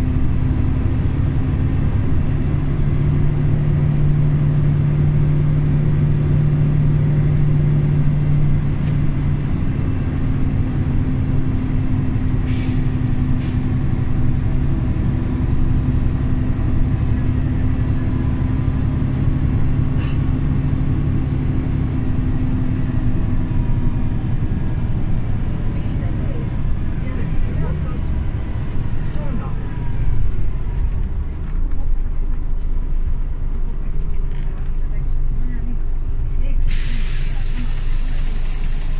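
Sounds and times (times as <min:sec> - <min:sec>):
bus engine drone: 0:00.0 - 0:38.9
air hiss: 0:12.5 - 0:13.7, 0:36.7 - 0:38.9.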